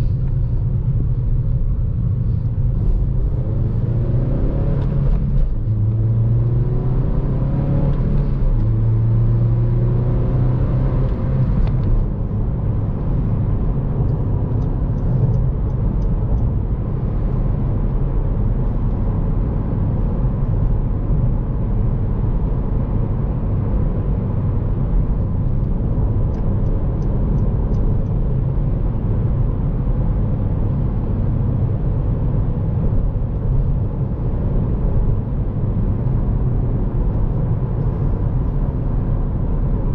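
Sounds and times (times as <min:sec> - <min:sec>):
car engine from inside: 0:00.0 - 0:39.9
road noise: 0:00.0 - 0:39.9.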